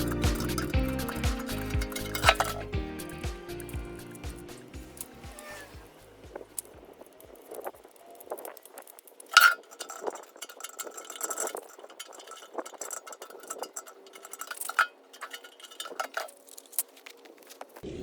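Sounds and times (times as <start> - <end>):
metal tools clinking: 0.0 - 17.8.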